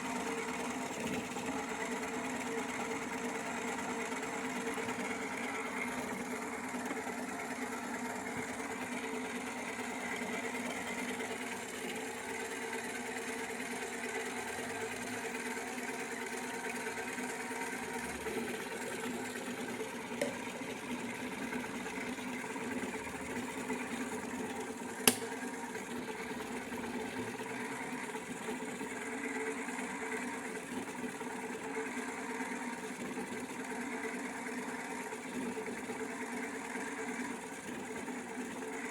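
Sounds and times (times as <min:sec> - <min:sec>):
clicks: 0:25.0 - 0:25.3.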